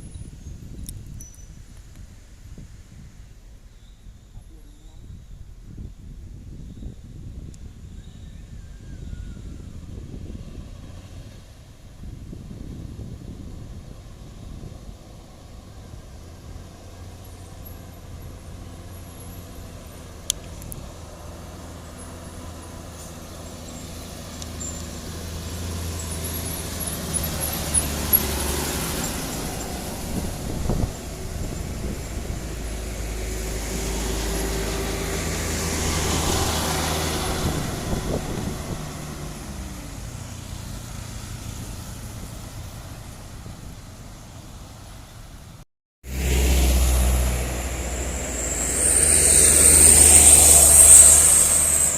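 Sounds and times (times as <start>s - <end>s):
diesel truck engine running: 12.5s - 45.5s, 46.1s - 51.9s.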